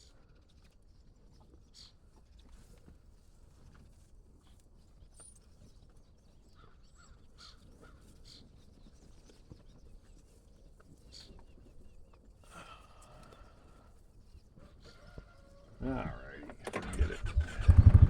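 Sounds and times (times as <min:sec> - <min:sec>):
distant bird calls: 0:05.1 - 0:18.0
low rumble: 0:16.0 - 0:18.0.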